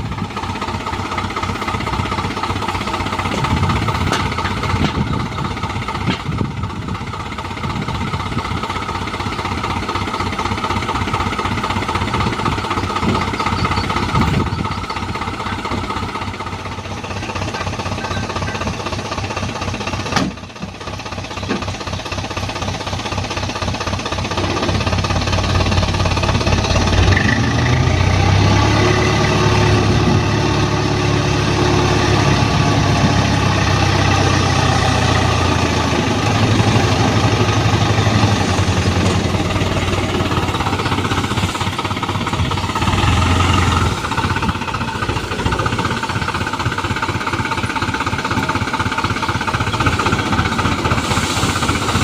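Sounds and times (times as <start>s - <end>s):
diesel truck engine revving: 24.2s - 52.0s.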